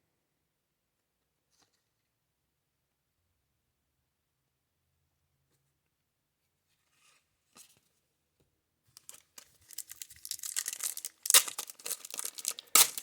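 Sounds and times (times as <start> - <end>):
plastic wrapper tearing and crinkling: 9.0 - 13.0.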